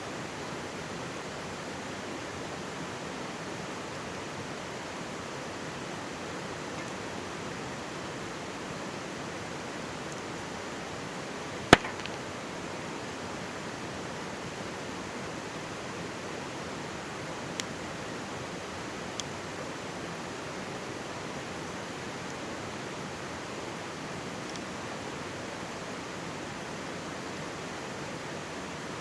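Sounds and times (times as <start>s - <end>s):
campfire wood popping: 11.7s - 12.4s.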